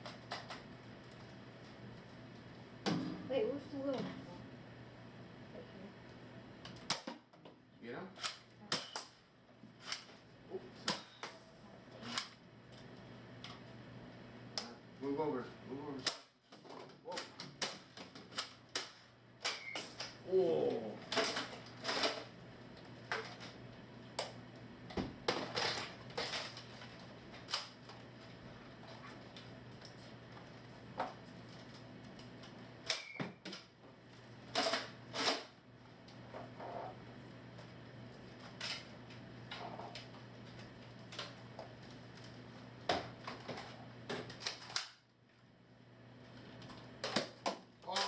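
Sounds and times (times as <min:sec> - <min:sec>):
darts striking targets: 0:02.9 - 0:03.3.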